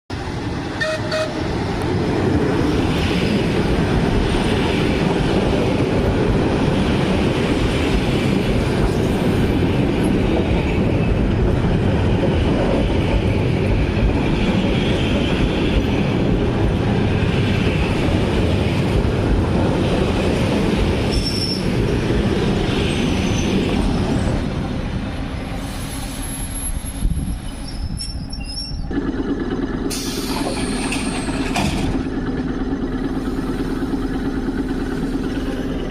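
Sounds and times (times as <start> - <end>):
train wheel and rail noise: 0.1 - 35.9.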